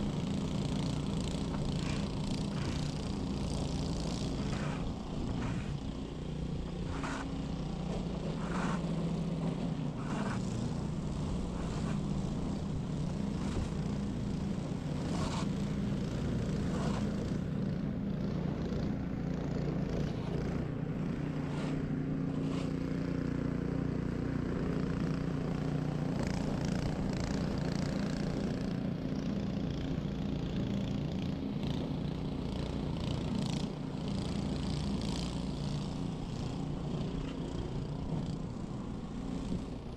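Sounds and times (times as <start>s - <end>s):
snow blower engine running: 0.0s - 39.9s
knocks and scrapes: 4.0s - 5.8s, 6.7s - 12.6s, 21.4s - 22.8s.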